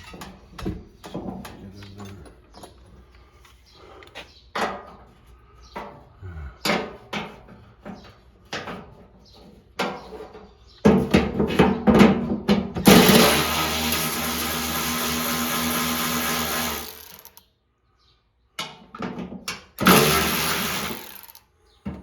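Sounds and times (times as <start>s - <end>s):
power tool whirring: 12.9s - 17.4s, 19.8s - 21.4s.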